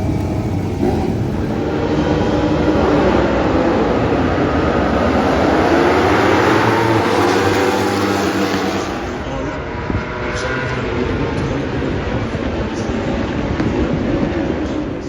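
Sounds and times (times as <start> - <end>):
wind rushing: 0.0 - 10.3
racing motorcycle engine: 0.0 - 15.0.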